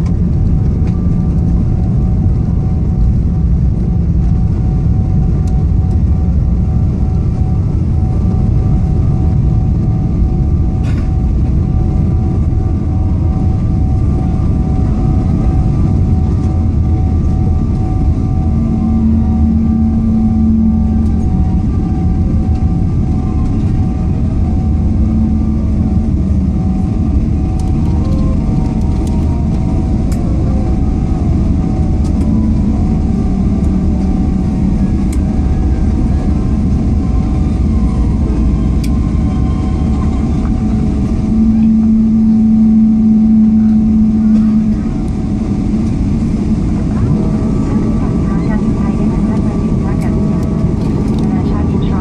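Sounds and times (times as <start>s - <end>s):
airliner cabin engine rumble: 0.0s - 52.0s
low hum: 0.0s - 52.0s
steady tones: 15.4s - 50.8s.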